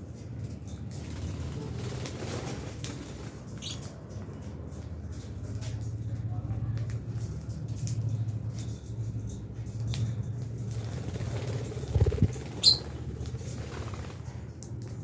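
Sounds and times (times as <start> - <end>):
lovebirds chirping: 3.6 - 3.8, 11.9 - 12.9
steady low hum: 10.1 - 14.5.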